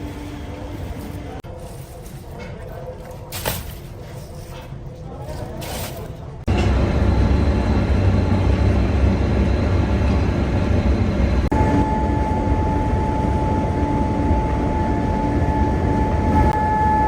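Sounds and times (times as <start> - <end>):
factory machinery rumbling: 0.0 - 17.0
high-pitched machine hum: 6.5 - 17.0.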